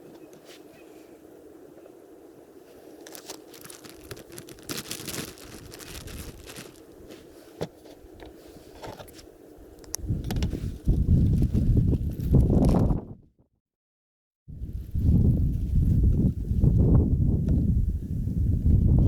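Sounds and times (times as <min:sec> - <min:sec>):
crunching and crinkling handling noise: 0:02.6 - 0:12.9.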